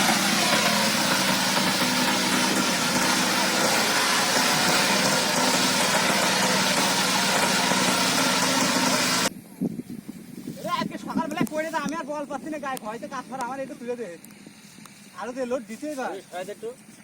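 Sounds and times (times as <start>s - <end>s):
power tiller engine running: 0.0s - 9.3s.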